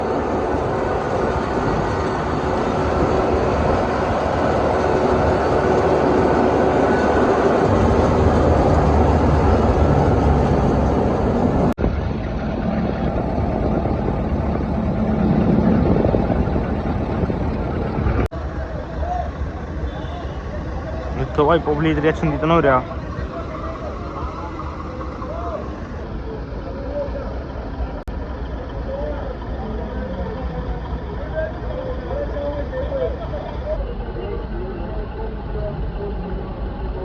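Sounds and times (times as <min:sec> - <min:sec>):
tractor engines rumbling: 0:00.0 - 0:37.0.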